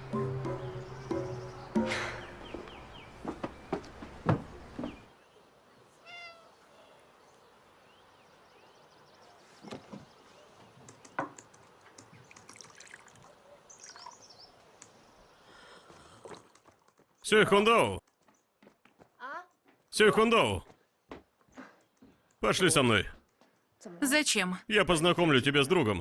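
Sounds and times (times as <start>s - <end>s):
knocks: 3.3s - 5.0s.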